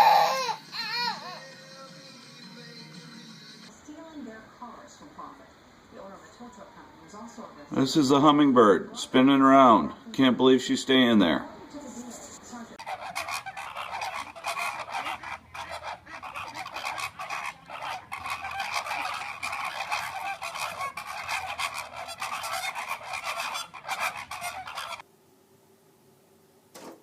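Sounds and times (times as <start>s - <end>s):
birds honking and squawking: 12.8s - 25.0s.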